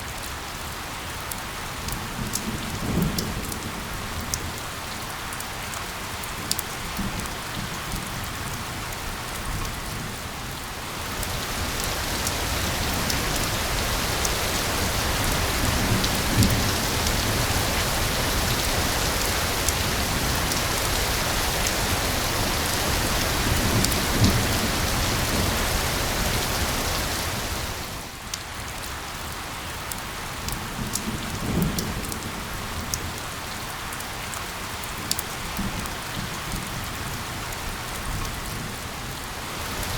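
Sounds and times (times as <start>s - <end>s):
steady rain: 0.0s - 39.9s
low thunder rumbles: 11.0s - 28.1s.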